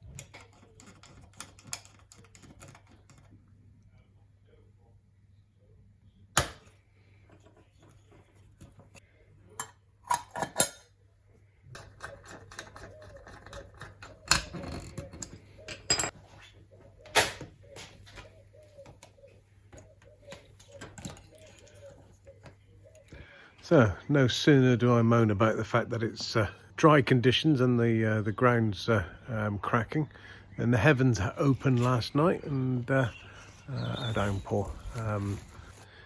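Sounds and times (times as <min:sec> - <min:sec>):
metal tools clicking and clinking: 0:09.6 - 0:11.0, 0:11.7 - 0:16.2.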